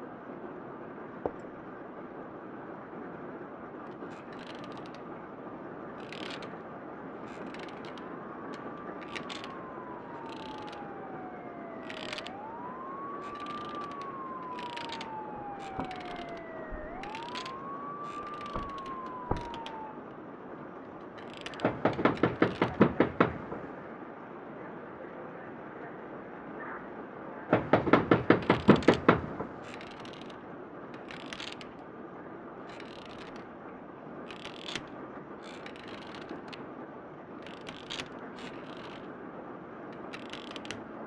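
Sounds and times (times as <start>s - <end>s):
police siren wailing: 6.2s - 23.8s, 27.5s - 31.8s
sharp knocks: 15.6s - 19.8s, 21.4s - 23.7s.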